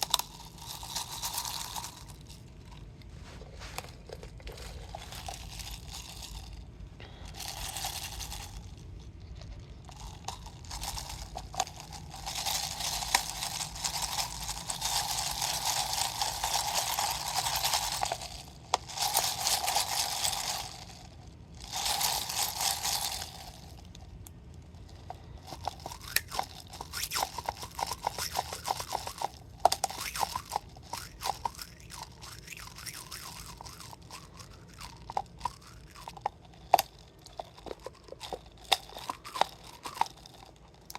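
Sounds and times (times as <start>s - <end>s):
water and ice moving in bottle: 25.0s - 40.9s.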